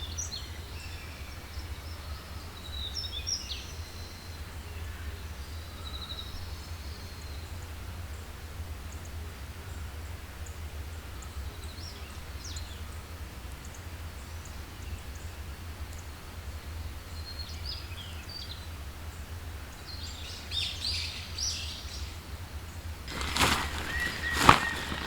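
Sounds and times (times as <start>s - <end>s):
birds chirping: 23.1s - 25.0s.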